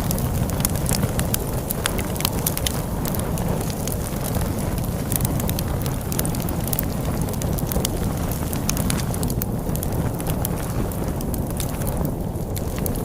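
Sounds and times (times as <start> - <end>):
log fire crackling and popping: 0.0 - 13.0
storm wind rushing: 0.0 - 13.0.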